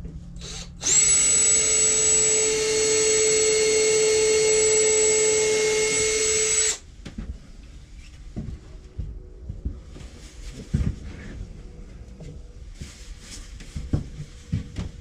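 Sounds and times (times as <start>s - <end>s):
power drill running: 0.4s - 6.8s.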